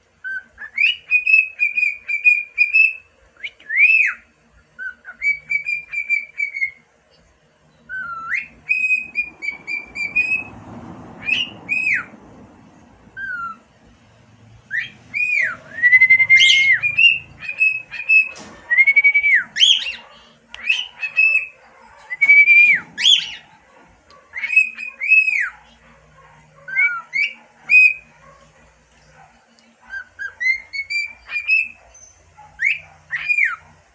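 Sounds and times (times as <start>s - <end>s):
cockatiel whistling: 0.2s - 4.2s, 4.8s - 6.8s, 7.9s - 10.5s, 11.2s - 12.1s, 13.2s - 13.6s, 14.7s - 23.6s, 24.3s - 25.6s, 26.6s - 28.1s, 29.9s - 33.7s
squeaky chirps: 13.1s - 13.7s, 14.7s - 28.3s, 29.9s - 33.8s.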